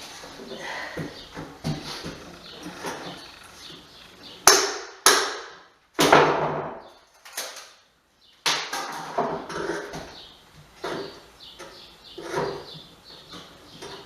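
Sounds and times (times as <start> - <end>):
hammer strikes: 4.4 - 6.6.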